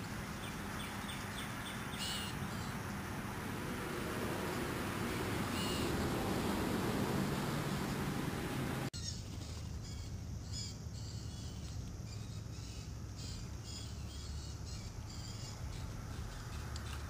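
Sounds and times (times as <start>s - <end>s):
steady rushing noise: 2.3s - 8.9s.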